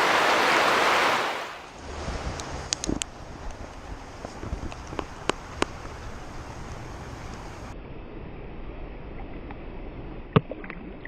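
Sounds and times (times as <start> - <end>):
outdoor hiss: 0.0 - 7.8
wind buffeting microphone: 1.8 - 7.7.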